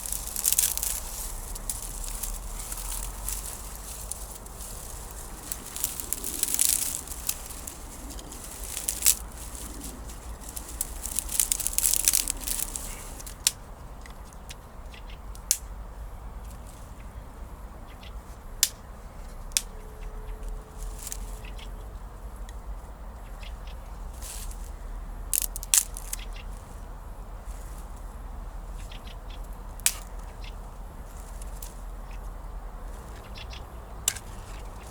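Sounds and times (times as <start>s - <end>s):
sticks snapping: 0.0s - 14.6s, 15.4s - 15.7s, 19.5s - 19.8s, 25.3s - 26.4s, 29.8s - 30.3s, 34.0s - 34.9s
dry grass rustling and crackling: 0.0s - 17.2s, 18.0s - 34.9s.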